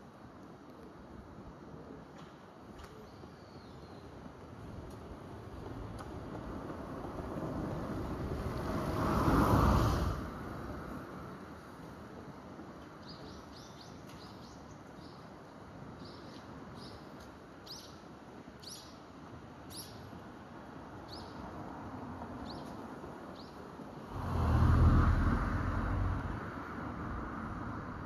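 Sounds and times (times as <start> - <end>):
loud low rumbling: 24.1 - 26.5.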